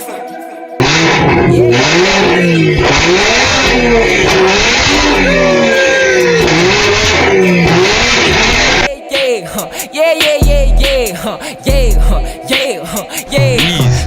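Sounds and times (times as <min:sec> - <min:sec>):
car engine revving: 0:00.8 - 0:09.0.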